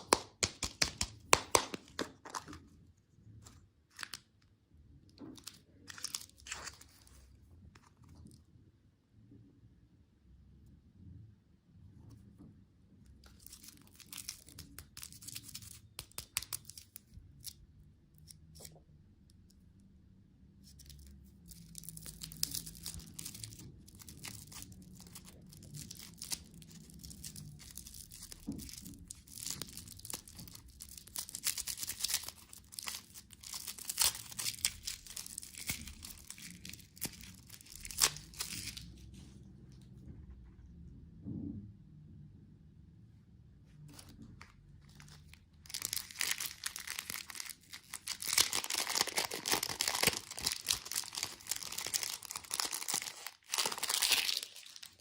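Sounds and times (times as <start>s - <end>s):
plastic wrapper crinkling: 0.0s - 2.8s, 5.3s - 8.4s, 13.2s - 17.6s, 20.7s - 39.3s, 43.9s - 55.0s.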